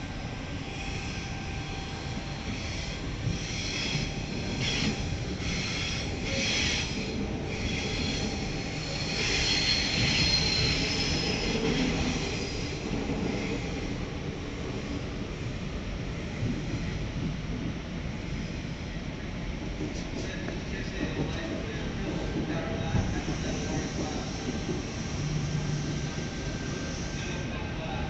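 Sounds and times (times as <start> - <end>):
train rumble inside carriage: 0.0 - 28.0
train wheels squealing: 0.6 - 14.1, 21.0 - 27.6.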